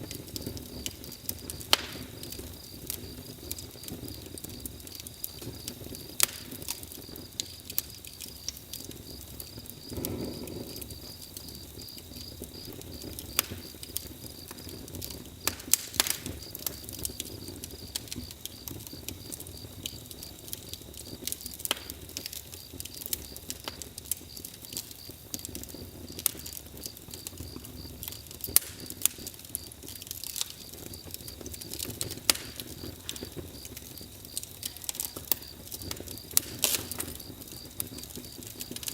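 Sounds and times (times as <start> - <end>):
campfire crackling: 0.0 - 38.9
fire popping: 0.0 - 38.9
low hiss: 0.0 - 38.9.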